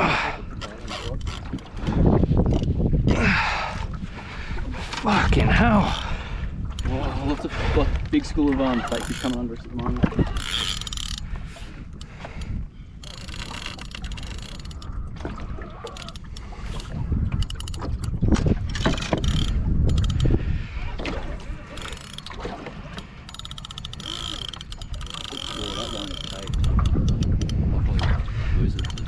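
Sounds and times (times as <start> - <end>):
fishing reel clicking and ratcheting: 0.8 - 1.7, 8.9 - 9.5, 10.3 - 11.3, 12.0 - 14.9, 15.9 - 20.4, 21.7 - 22.4, 23.0 - 27.6, 28.8 - 29.0.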